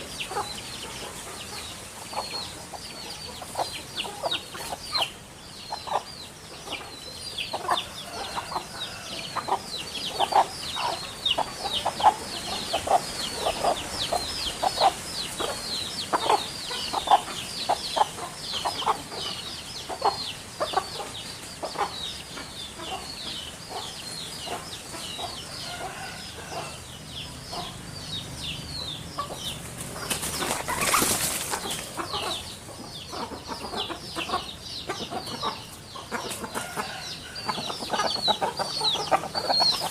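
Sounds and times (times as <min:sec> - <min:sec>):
chickens clucking: 0:00.0 - 0:39.9
wing flapping: 0:29.7 - 0:32.0.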